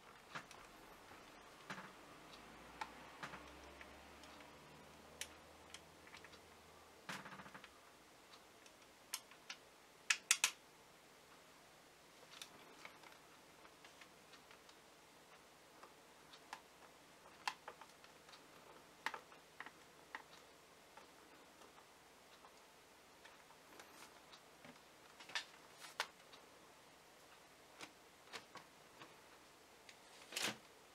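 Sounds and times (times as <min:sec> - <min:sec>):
plastic and metal clicks: 0:08.6 - 0:10.6.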